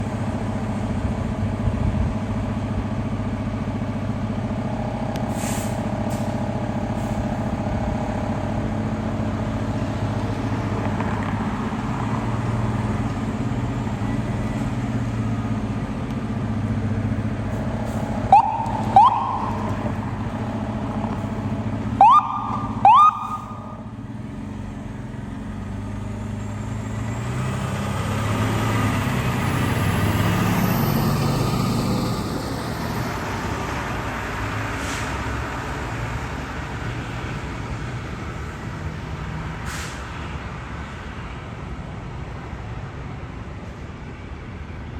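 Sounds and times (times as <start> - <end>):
fire truck engine rumbling: 0.0 - 44.9
short rising siren whoops: 18.3 - 19.8, 22.0 - 23.8.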